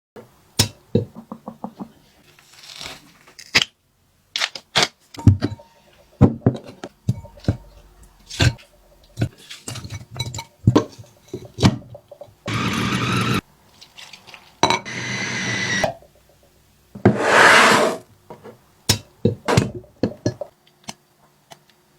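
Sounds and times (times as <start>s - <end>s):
scraping: 17.1s - 18.0s.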